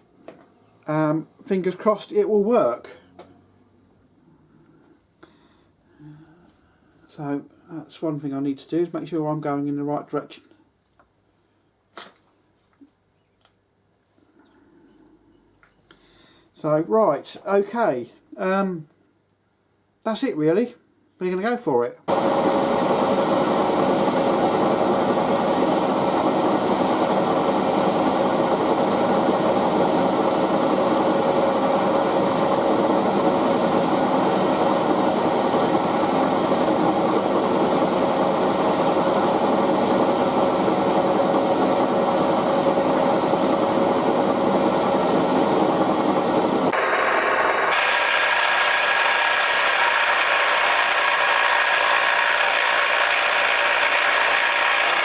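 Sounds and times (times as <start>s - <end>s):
milling machine cutting metal: 46.7s - 55.0s.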